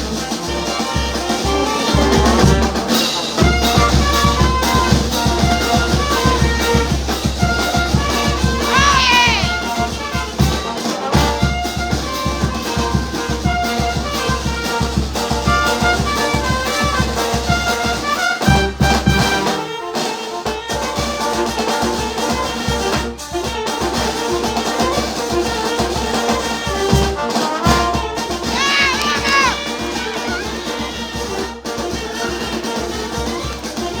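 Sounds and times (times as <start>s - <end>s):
brass band playing: 0.0s - 34.0s
bass drum beat: 3.7s - 10.6s, 26.9s - 31.3s.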